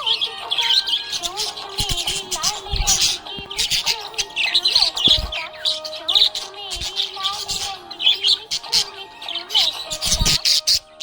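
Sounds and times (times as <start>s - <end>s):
background music: 0.0s - 11.0s
budgerigars chirping and warbling: 0.0s - 11.0s.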